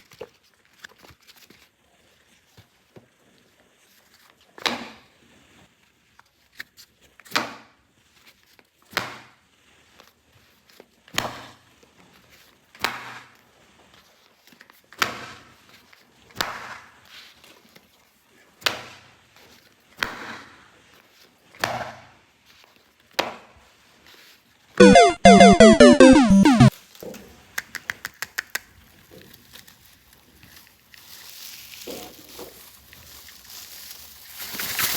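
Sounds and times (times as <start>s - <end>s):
toy electronic jingle: 24.8s - 26.7s.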